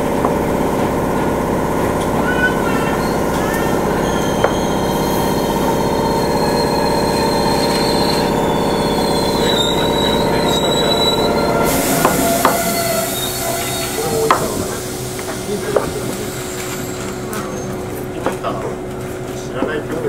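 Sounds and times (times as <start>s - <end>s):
train motor and wheel noise: 0.0s - 20.0s
high wheel squeal: 2.0s - 18.2s
hiss: 11.6s - 17.2s.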